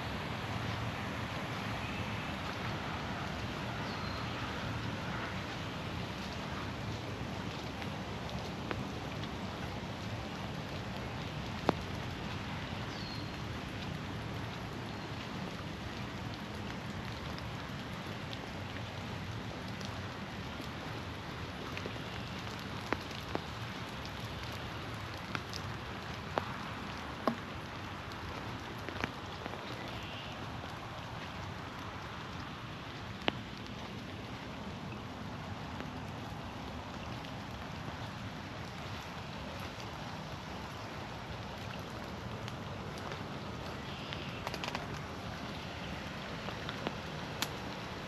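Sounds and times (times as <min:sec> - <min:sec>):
steady rain in forest: 0:00.0 - 0:48.0.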